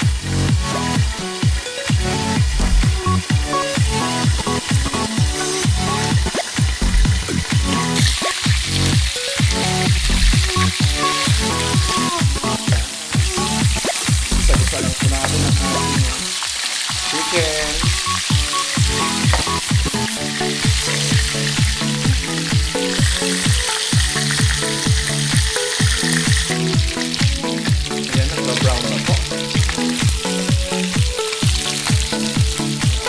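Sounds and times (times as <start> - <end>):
background music with beat: 0.0 - 33.0
chicken sizzling in a pan: 3.2 - 33.0
spatula turning food: 4.0 - 28.4.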